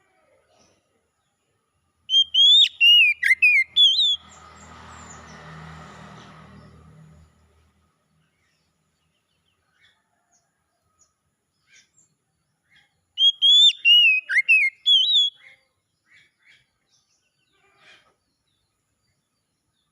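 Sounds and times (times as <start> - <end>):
bird whistled song phrase: 2.1 - 4.3, 13.2 - 15.4
faint bird chirps: 2.1 - 4.3, 9.4 - 19.9.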